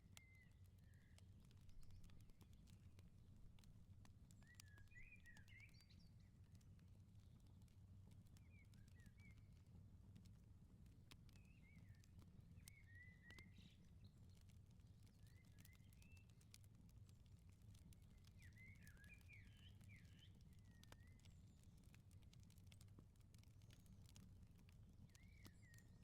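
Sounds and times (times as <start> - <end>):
wood fire crackling: 0.0 - 26.0
small birds chirping: 0.1 - 2.9, 3.6 - 6.6, 11.3 - 23.0, 23.6 - 26.0.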